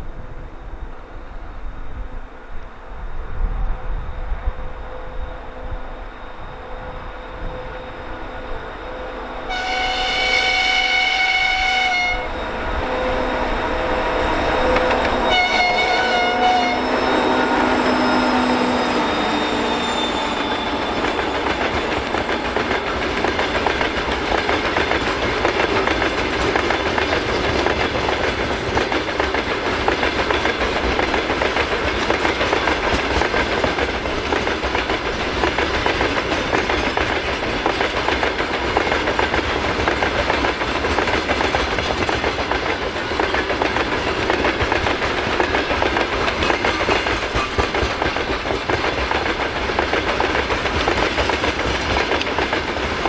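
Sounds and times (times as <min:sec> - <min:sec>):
freight train wagons rolling past: 0:00.0 - 0:53.0.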